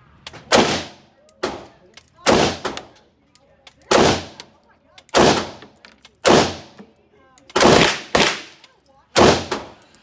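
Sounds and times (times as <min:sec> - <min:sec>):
gunshots with echo: 0:05.2 - 0:05.6.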